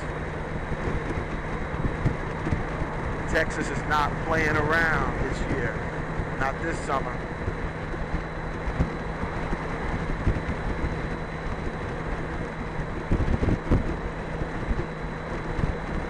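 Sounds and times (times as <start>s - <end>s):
low engine and road drone: 0.0s - 16.0s
wind buffeting microphone: 0.0s - 16.0s.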